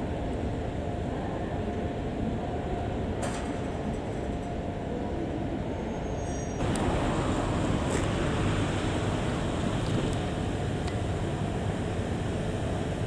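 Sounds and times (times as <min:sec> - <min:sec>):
loud hissing rush: 0:06.6 - 0:13.0
train low rumble: 0:06.6 - 0:13.0.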